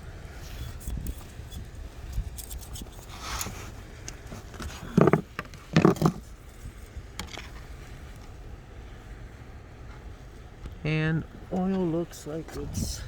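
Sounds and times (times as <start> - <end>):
dipstick clicks and scrapes: 0.4 - 6.3.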